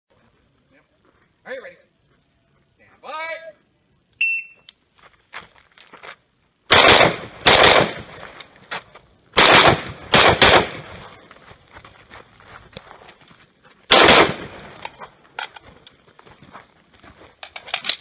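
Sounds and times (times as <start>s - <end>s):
shot timer beep: 4.2s - 4.7s
rifle shots echoing: 6.7s - 8.3s, 9.4s - 11.2s, 13.9s - 14.9s.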